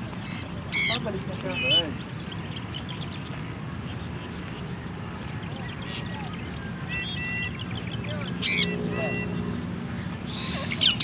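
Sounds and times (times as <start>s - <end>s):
low outdoor rumble: 0.0s - 11.0s
faint bird squawk: 8.4s - 9.4s.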